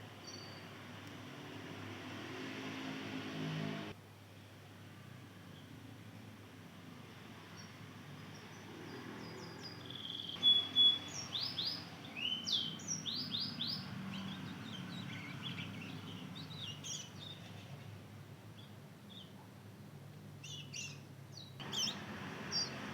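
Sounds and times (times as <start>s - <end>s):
young finch twittering: 9.4s - 17.7s, 20.4s - 22.9s.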